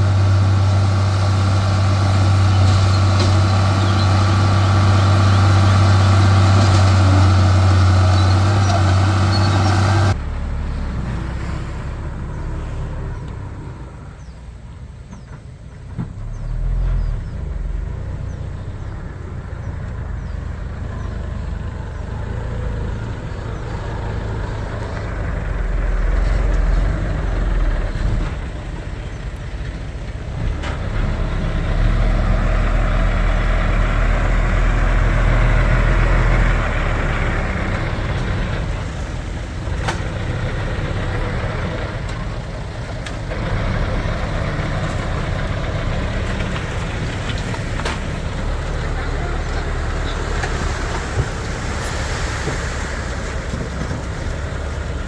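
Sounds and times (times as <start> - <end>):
heavy diesel machinery engines: 0.0 - 55.0.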